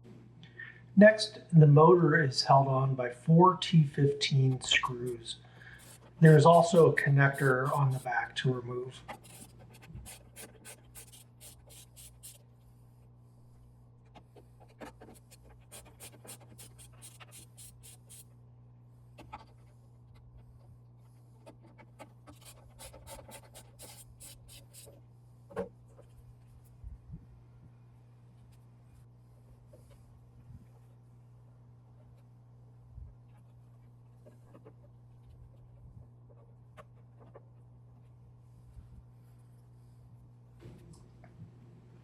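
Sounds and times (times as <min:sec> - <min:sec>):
steady low hum: 0:00.0 - 0:42.0
screwdriver clicking and scratching: 0:05.8 - 0:08.1, 0:09.0 - 0:12.4, 0:14.1 - 0:18.2, 0:21.4 - 0:25.0.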